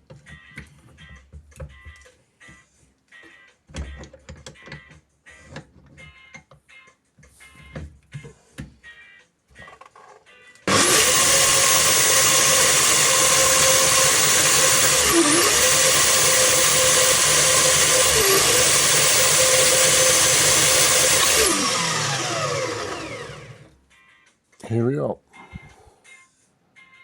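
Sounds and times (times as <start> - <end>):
bandsaw cutting metal: 10.7 - 23.7
bandsaw spinning down: 10.7 - 23.7.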